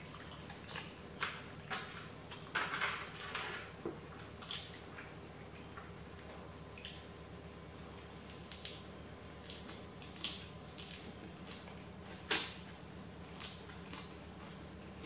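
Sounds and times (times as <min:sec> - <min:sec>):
wet chewing clicks and smacks: 0:13.2 - 0:14.5.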